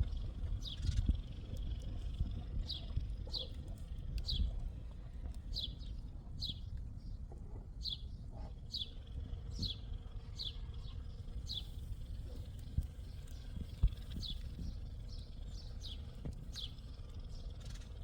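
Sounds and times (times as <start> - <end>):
low outdoor rumble: 0.0 - 18.0
small bird chirping: 8.7 - 18.0.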